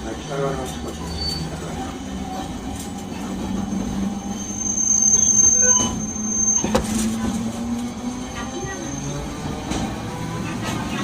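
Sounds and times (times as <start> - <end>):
streetcar humming: 0.0 - 11.0
high wheel squeal: 1.0 - 1.7, 3.9 - 7.0.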